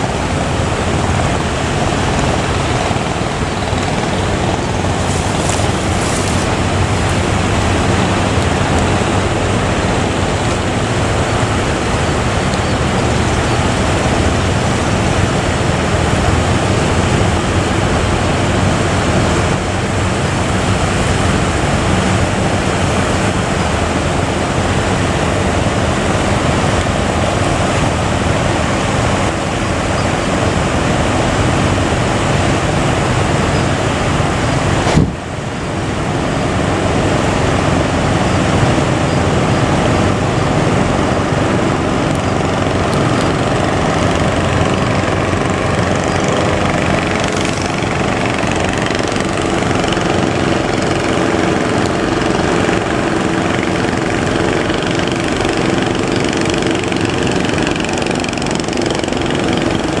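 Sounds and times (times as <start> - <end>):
small boat engine running: 0.0 - 60.0
surf roaring: 0.0 - 60.0
wind: 0.0 - 60.0
sharp thump: 34.8 - 35.2.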